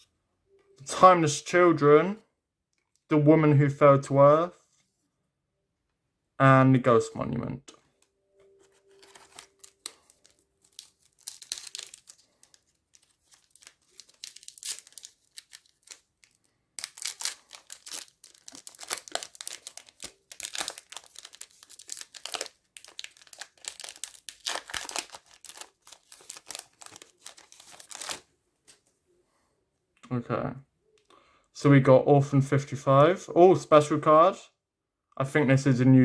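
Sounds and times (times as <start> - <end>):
wrapper tearing and crinkling: 8.6 - 28.3.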